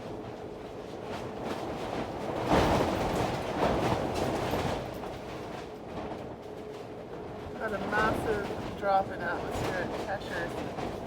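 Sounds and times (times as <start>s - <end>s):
storm wind buffeting a boat: 7.1s - 11.0s.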